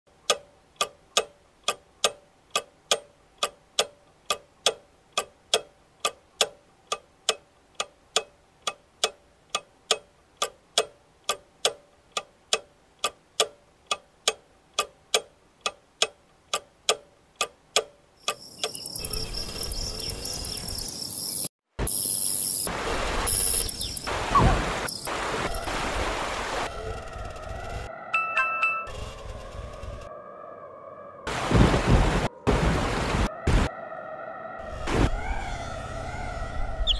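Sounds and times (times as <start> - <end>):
clock ticking: 0.1 - 19.1.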